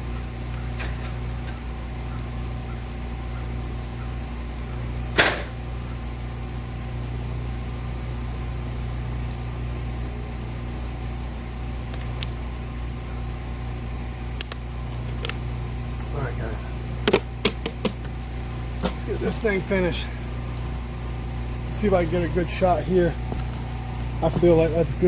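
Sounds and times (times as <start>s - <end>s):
engine humming: 0.0s - 25.0s
sharp click: 5.2s - 5.6s.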